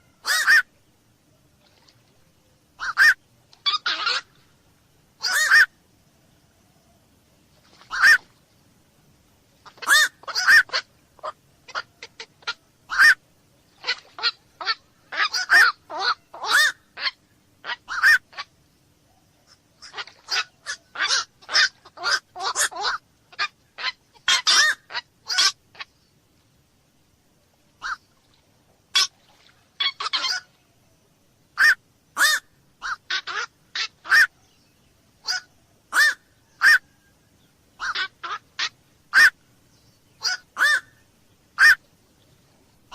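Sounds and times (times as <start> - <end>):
night heron calling: 0.0 - 0.7, 2.8 - 4.4, 5.2 - 5.8, 7.8 - 8.3, 9.6 - 26.0, 27.8 - 28.2, 28.9 - 41.9.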